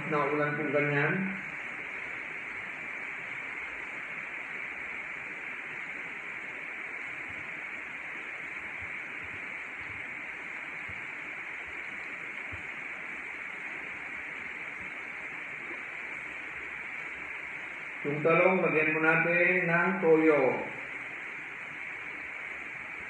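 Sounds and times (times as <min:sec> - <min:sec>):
rain falling: 0:00.0 - 0:23.0.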